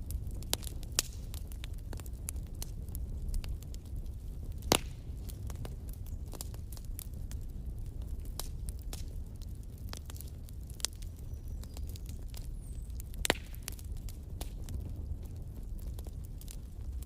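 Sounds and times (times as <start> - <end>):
low rumble of flames: 0.0 - 17.0
wood fire crackling: 0.0 - 17.0.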